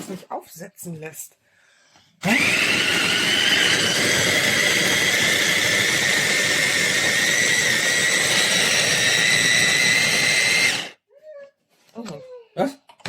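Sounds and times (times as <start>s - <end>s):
food chopper motor whine: 2.2s - 11.0s.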